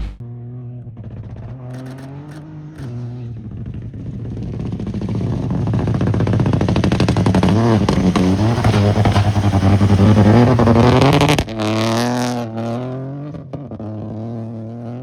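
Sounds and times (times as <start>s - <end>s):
car engine under full throttle: 0.0s - 15.0s
gear change: 0.8s - 4.0s.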